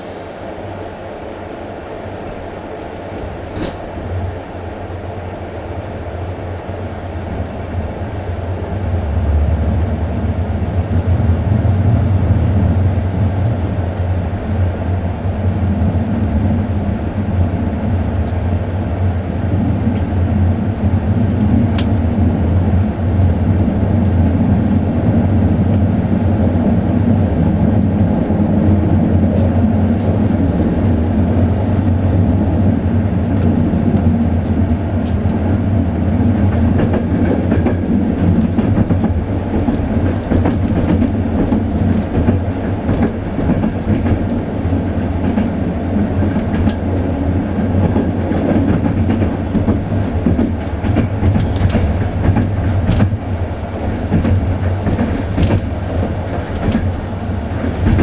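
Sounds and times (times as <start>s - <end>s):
train rumbling on rails: 0.0s - 58.0s
faint rail clicks: 17.1s - 18.4s, 21.2s - 22.4s, 33.3s - 58.0s.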